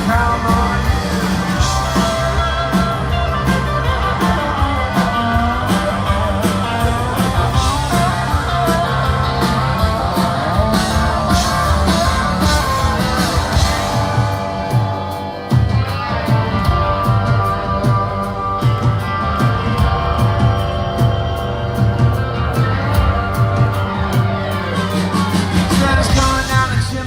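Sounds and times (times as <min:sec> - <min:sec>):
bass guitar: 0:00.0 - 0:27.0
electric guitar: 0:00.0 - 0:27.0
steady drum beat: 0:00.0 - 0:27.0.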